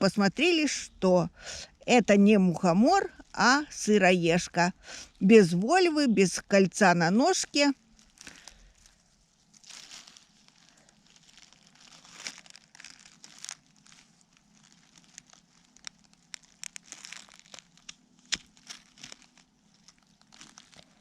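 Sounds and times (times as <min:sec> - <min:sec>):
rustling of dry leaf litter: 0:06.8 - 0:21.0.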